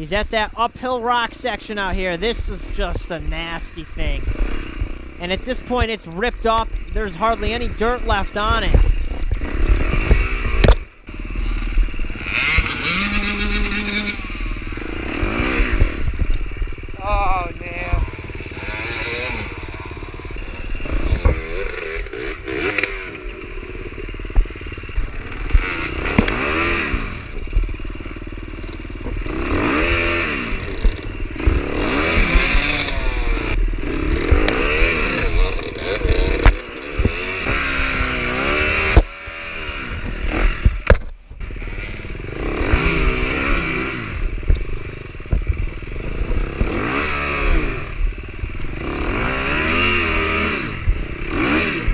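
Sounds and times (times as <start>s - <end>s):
dirt bike engines revving: 0.0s - 51.9s
bikes knocking on rock: 40.6s - 41.2s.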